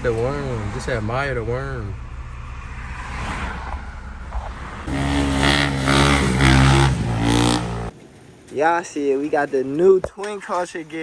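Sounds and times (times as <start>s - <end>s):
motorbike engine revving: 4.8s - 7.9s.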